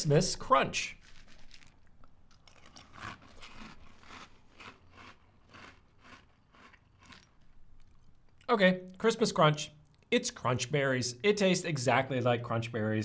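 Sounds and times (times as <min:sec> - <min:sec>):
person chewing cereal: 0:01.0 - 0:08.5.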